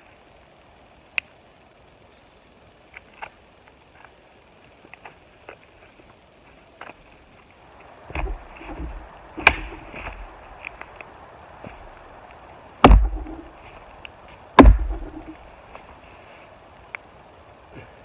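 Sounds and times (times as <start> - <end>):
axe chopping wood: 8.1 - 10.8, 12.8 - 13.6, 14.6 - 15.4.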